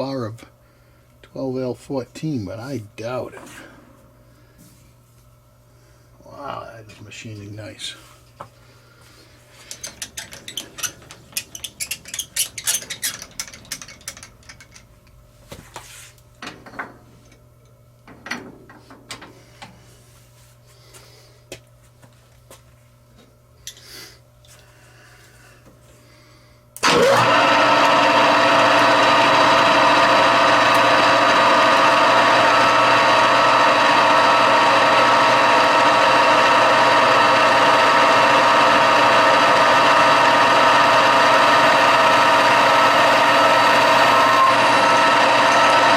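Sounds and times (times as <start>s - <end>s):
low machine hum: 0.0s - 45.9s
shop machine running loud: 26.8s - 45.9s.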